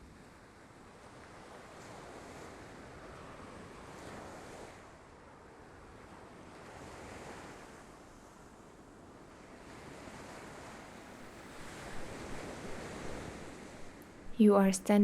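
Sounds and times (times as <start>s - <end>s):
ocean surf washing onto beach: 9.5s - 14.3s.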